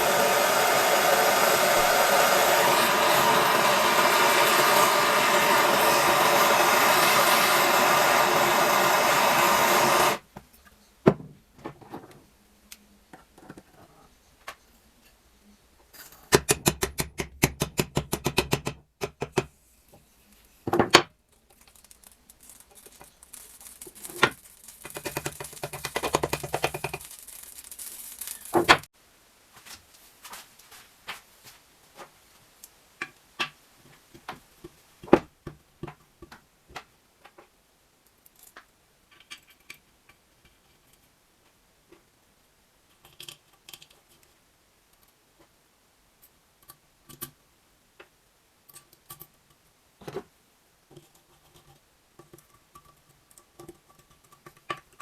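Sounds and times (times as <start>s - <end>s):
loud blowing noise: 0.0s - 10.2s.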